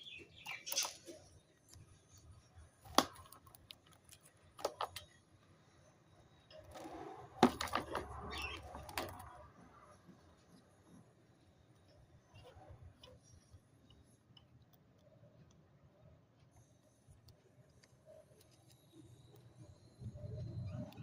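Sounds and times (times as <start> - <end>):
budgies clicking and tapping: 0.0 - 2.2, 7.4 - 9.4.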